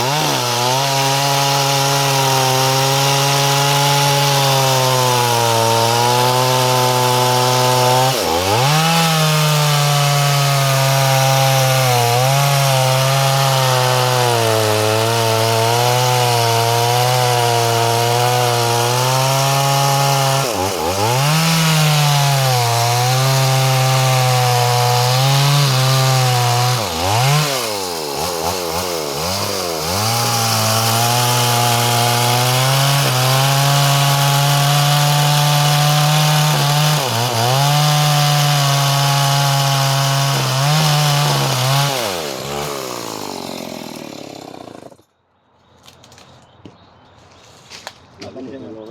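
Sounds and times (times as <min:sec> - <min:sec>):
chainsaw running hard: 0:00.0 - 0:45.0.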